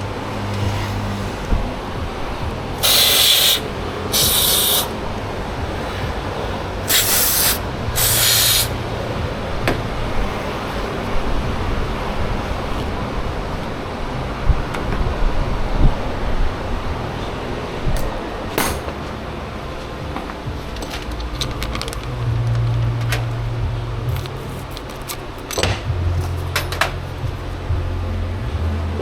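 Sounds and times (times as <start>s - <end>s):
aerosol spray hissing bursts: 2.8s - 4.9s, 6.9s - 8.7s.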